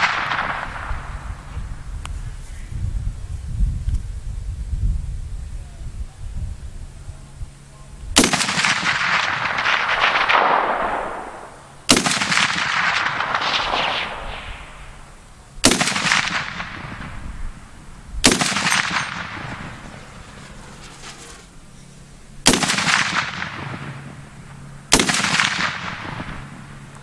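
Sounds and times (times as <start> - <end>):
rifle shots with rolling echo: 0.0 - 1.6, 8.2 - 26.9.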